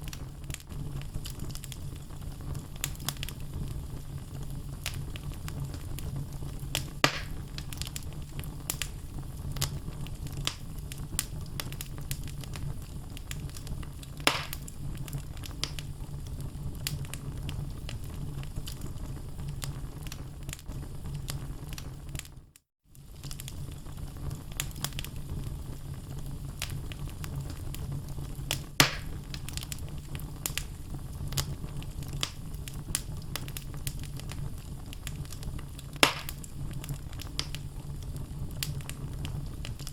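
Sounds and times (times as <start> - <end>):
logs crackling: 0.0 - 3.6, 4.6 - 15.9, 26.6 - 39.9
fire pops: 0.0 - 39.9
low rumble of flame: 0.0 - 39.9.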